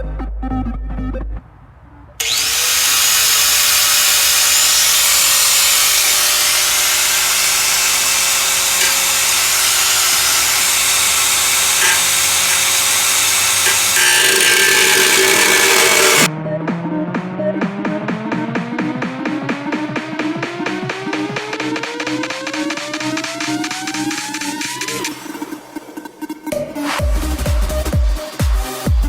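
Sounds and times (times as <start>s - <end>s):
power tool cutting metal: 2.2s - 16.3s.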